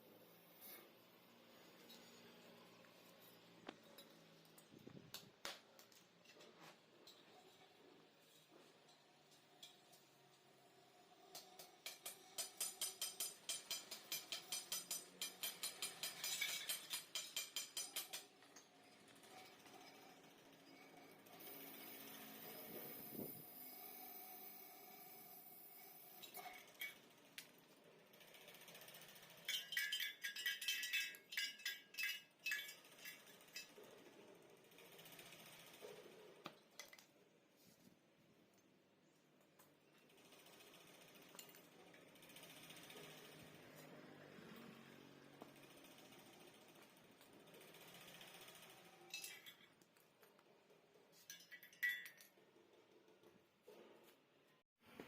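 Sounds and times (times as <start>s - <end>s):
metal clinking and rattling: 11.3s - 22.6s, 26.2s - 37.0s, 45.1s - 53.3s.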